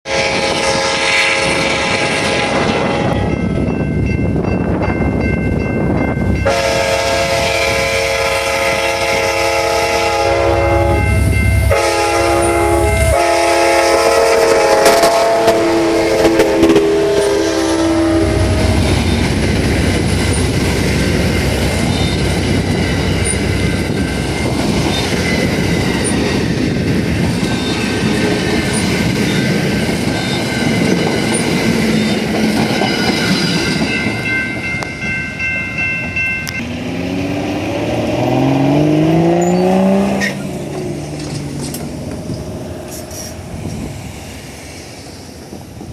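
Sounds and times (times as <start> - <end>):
train horn blasts: 0.0 - 3.3, 6.4 - 19.5
train wheels clattering on rails: 11.3 - 36.8, 37.6 - 45.9.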